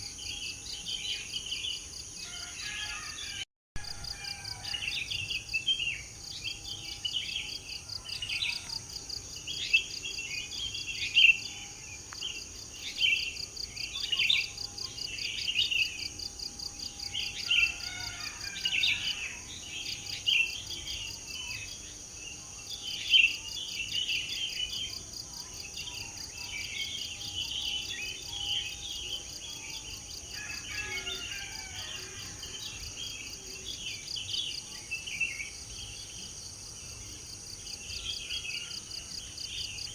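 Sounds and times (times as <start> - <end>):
songbirds chirping and singing: 0.0 - 16.2
insect trill: 0.0 - 39.9.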